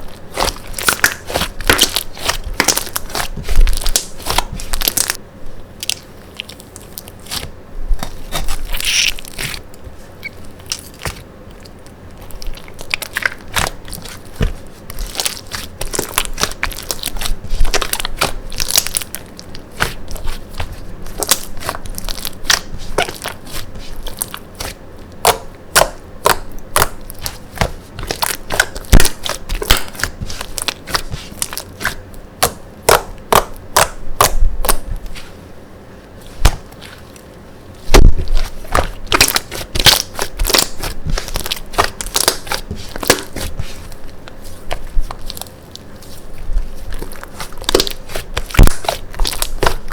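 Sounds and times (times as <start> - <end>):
slime clicking and popping: 37.9 - 43.4, 47.0 - 49.8.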